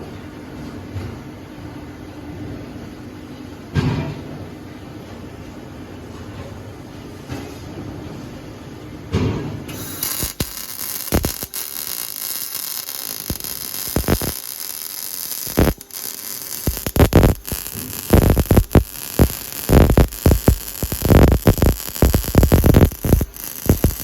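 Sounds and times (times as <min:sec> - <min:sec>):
sharp welding pops: 0:09.7 - 0:24.0
welding arc crackling and hissing: 0:09.7 - 0:24.0.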